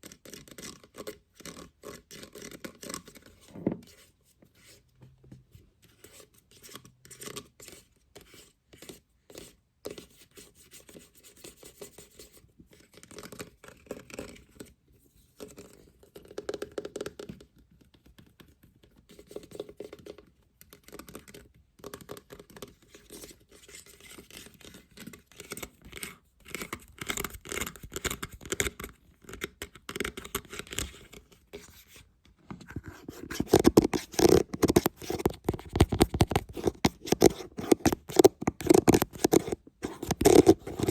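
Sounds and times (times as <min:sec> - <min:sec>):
scratching and tapping on a lid: 0:25.8 - 0:40.9.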